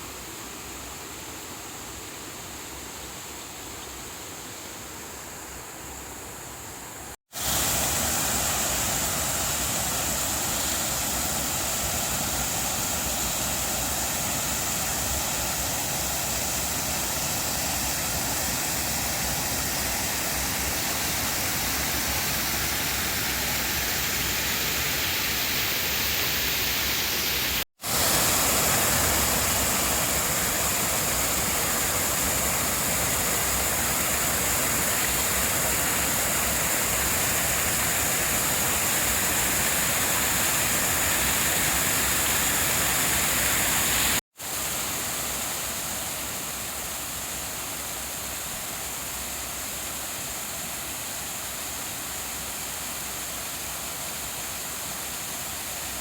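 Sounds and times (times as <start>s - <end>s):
water pouring over a dam: 7.4s - 46.3s.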